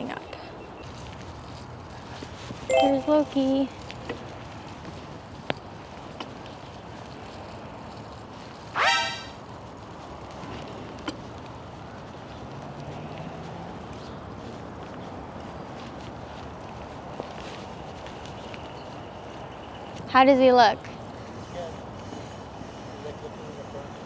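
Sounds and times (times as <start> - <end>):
outdoor background noise: 0.0 - 24.0
loud rising squeal: 8.8 - 9.4.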